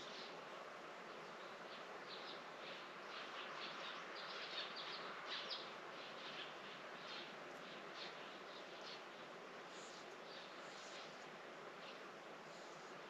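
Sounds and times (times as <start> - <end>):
faint hiss: 0.0 - 13.0
small birds twittering: 1.1 - 11.2.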